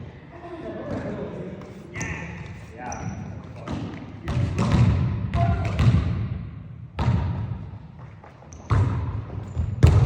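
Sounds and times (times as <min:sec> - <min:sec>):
basketball bouncing on gym floor: 0:03.6 - 0:06.4, 0:07.0 - 0:10.0.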